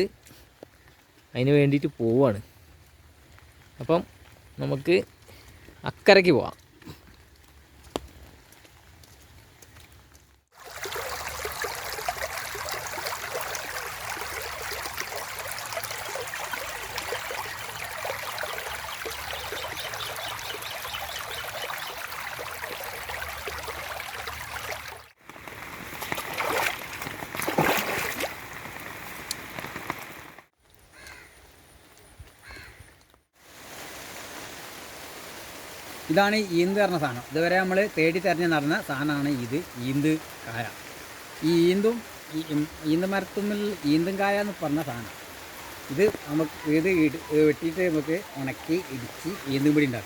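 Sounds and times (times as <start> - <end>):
rustling or splashing noises: 2.4 - 37.1
running water rushing: 10.5 - 30.5, 33.4 - 50.0.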